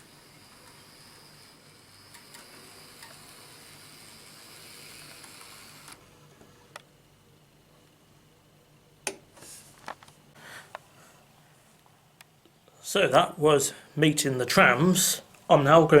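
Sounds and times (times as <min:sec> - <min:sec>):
model tram motor whirring: 0:00.0 - 0:06.8.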